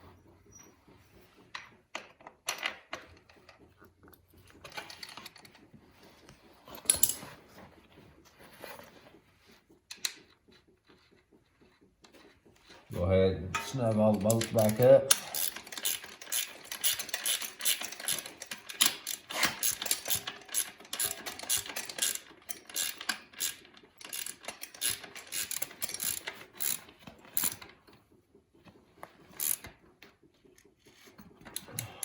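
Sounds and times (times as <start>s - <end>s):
ratchet wrench clicking: 13.6s - 27.6s, 29.4s - 29.7s.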